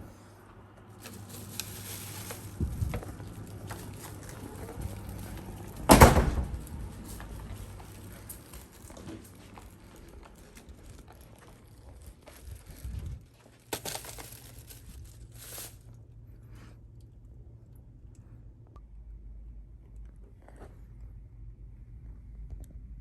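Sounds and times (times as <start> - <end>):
packaging rustling: 0.9 - 6.0, 13.6 - 15.8.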